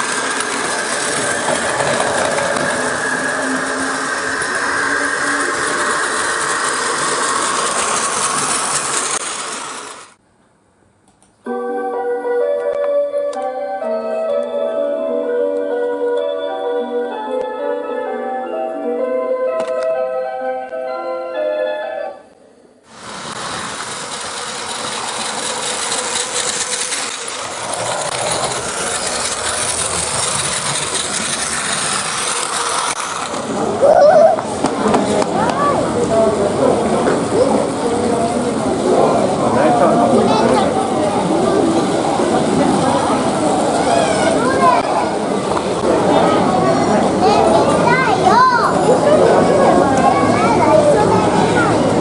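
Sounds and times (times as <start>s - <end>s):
mechanical running noise: 0.0s - 10.2s, 23.0s - 33.9s
train rumbling on rails: 0.0s - 10.2s, 22.8s - 52.0s
keyboard music with held chords: 11.5s - 22.3s.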